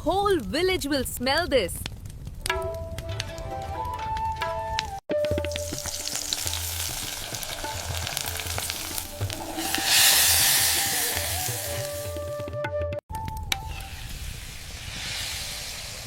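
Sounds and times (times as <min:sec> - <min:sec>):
food sizzling in a pot: 0:05.2 - 0:12.2, 0:13.7 - 0:16.0.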